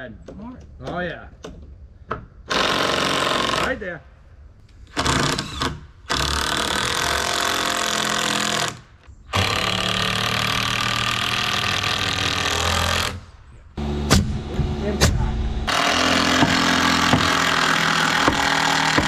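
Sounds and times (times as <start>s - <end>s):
power tool running: 5.0s - 13.2s, 13.8s - 19.0s.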